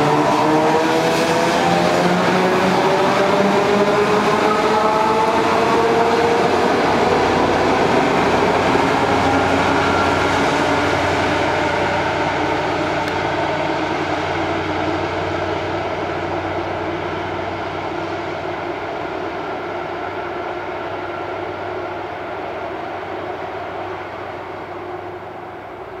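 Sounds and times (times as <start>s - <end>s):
faint train whine: 0.0s - 26.0s
train wheels rumbling on rails: 0.0s - 26.0s.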